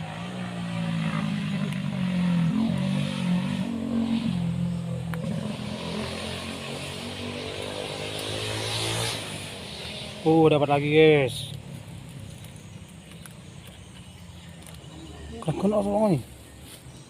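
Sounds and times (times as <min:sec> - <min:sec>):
engine humming: 0:00.0 - 0:16.7.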